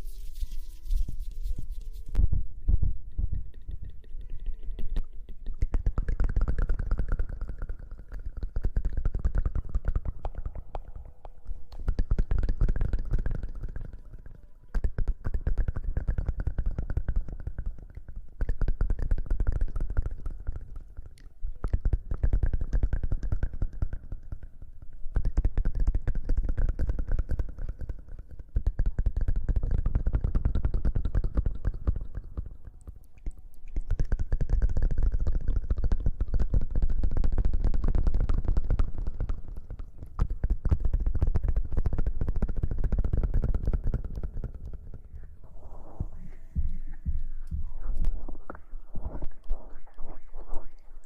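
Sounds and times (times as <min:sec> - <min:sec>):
rubbing on a microphone: 0:00.0 - 0:04.5, 0:33.6 - 0:51.0.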